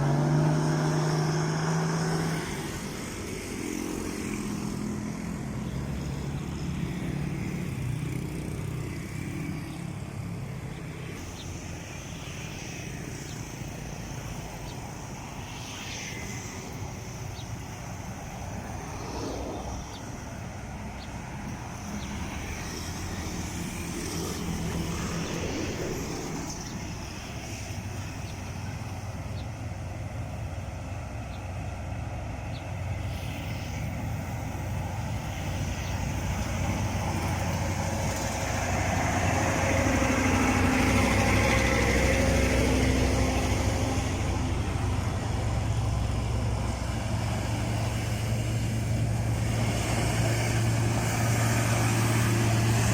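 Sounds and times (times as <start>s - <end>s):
road traffic: 0.0s - 52.9s
heavy diesel engine running: 16.4s - 52.9s.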